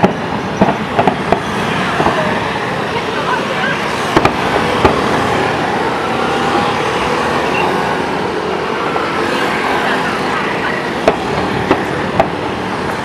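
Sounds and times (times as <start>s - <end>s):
firework bangs: 0.0s - 2.4s, 3.8s - 5.6s
crowd hubbub: 0.0s - 13.0s.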